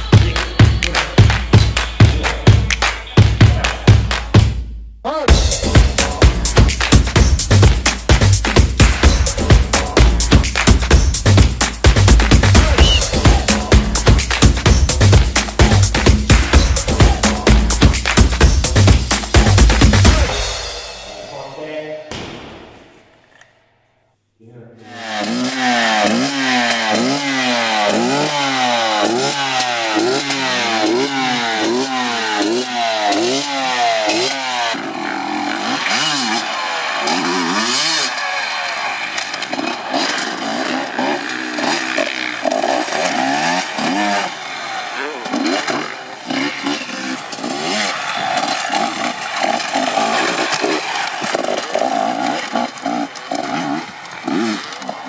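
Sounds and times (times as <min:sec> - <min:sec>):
dirt bike engine revving: 0:05.3 - 0:21.4, 0:24.8 - 0:55.0.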